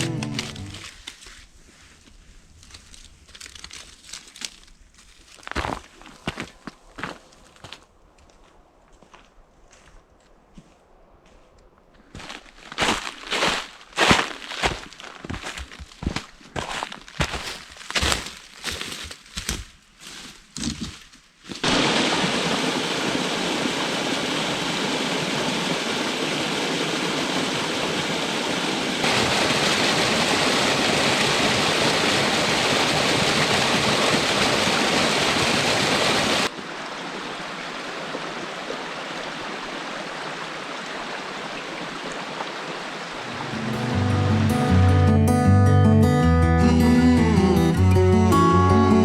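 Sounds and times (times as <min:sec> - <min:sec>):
crunching footsteps: 0:00.0 - 0:21.8
stream and waterfall rushing: 0:21.6 - 0:45.0.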